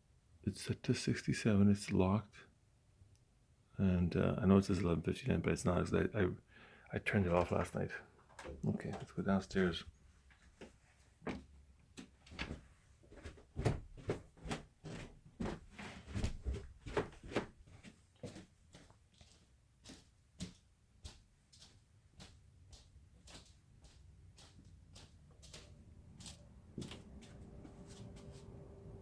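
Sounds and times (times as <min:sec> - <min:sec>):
footsteps on stairs: 0:10.5 - 0:28.8.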